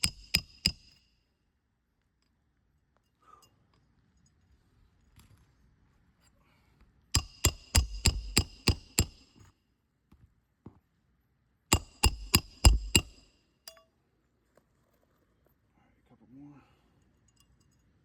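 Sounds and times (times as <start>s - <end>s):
hammer striking metal: 0.0s - 1.0s, 7.2s - 9.4s, 11.7s - 13.3s.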